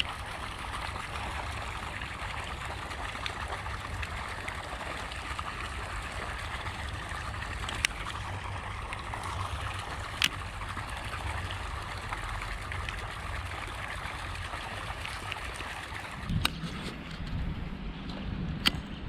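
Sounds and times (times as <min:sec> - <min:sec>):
stream water flowing: 0:00.0 - 0:17.7
sharp click: 0:18.6 - 0:19.0.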